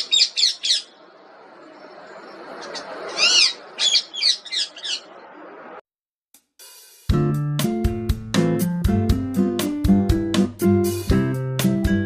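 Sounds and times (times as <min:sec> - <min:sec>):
parrot shrill calls: 0:00.0 - 0:00.9, 0:02.7 - 0:05.1.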